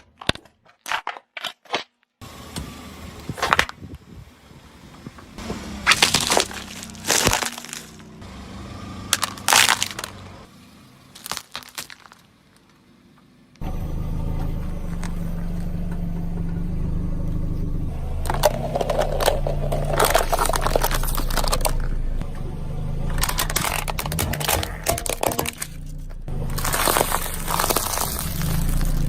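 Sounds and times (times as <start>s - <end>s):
objects cracking and crunching: 0.0s - 2.1s, 5.8s - 8.1s, 9.1s - 10.2s, 11.1s - 12.8s, 18.2s - 22.0s, 23.1s - 29.0s.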